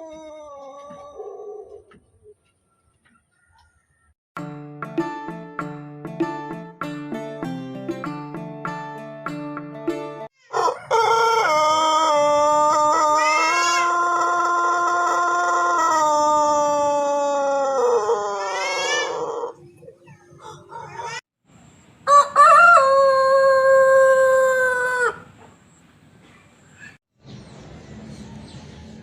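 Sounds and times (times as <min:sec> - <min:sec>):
rooster crowing: 0:10.4 - 0:19.6, 0:22.1 - 0:25.3.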